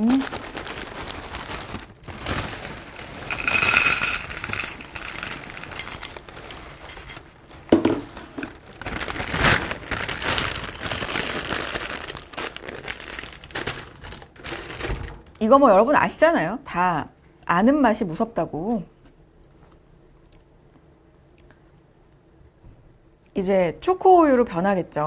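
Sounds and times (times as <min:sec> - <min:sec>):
plastic packaging crinkling: 0:00.0 - 0:14.9
sharp plastic crackle: 0:00.0 - 0:14.9.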